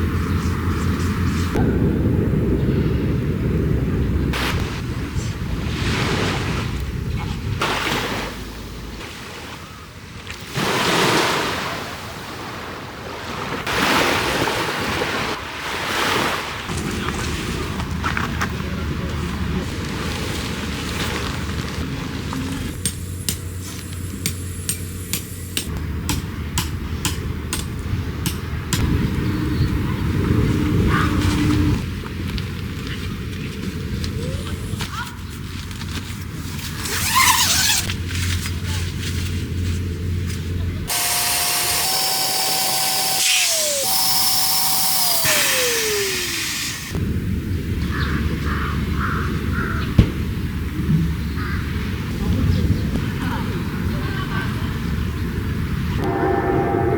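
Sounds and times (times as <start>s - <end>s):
outdoor ambience: 15.0s - 56.9s
small electric motor whirring: 22.3s - 25.7s, 40.9s - 47.0s
hammer strikes: 22.8s - 29.0s.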